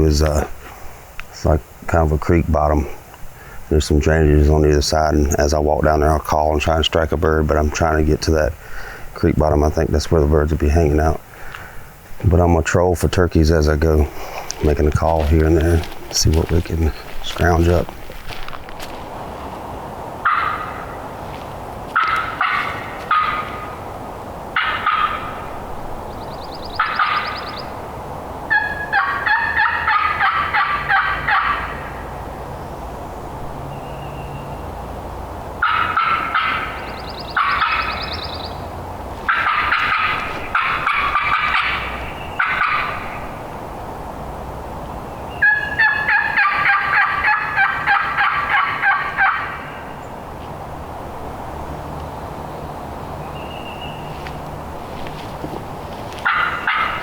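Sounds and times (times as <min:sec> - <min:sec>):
turkey call yelps: 0:20.2 - 0:21.0, 0:22.0 - 0:23.9, 0:24.6 - 0:25.6, 0:26.7 - 0:27.8, 0:28.5 - 0:32.1, 0:35.6 - 0:38.6, 0:39.3 - 0:43.4, 0:45.3 - 0:50.0, 0:56.2 - 0:57.0.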